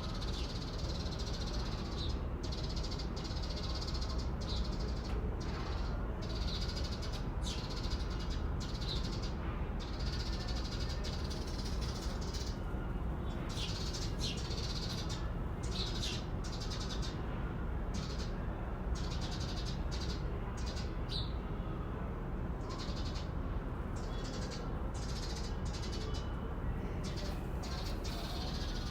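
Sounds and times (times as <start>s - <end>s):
small birds chirping: 13.2s - 17.2s, 27.0s - 28.9s.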